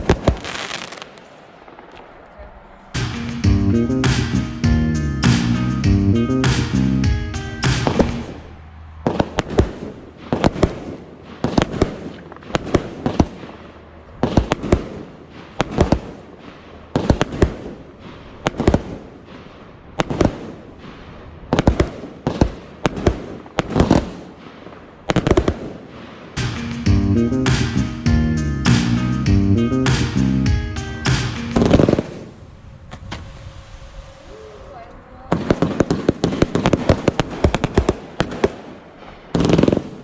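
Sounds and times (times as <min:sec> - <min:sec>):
firework hiss: 0:00.0 - 0:02.0, 0:31.1 - 0:37.8, 0:39.3 - 0:40.0
firework cake reports: 0:34.2 - 0:37.4.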